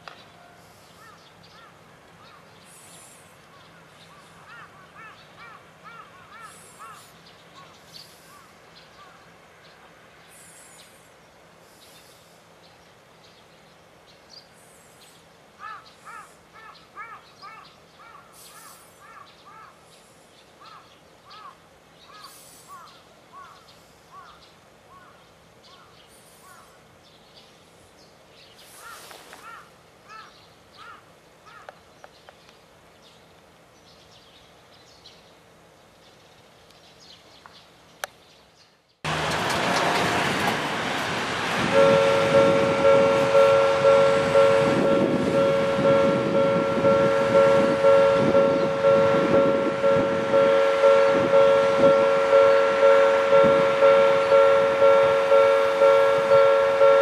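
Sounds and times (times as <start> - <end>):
loud steady rushing noise: 39.1 - 57.0.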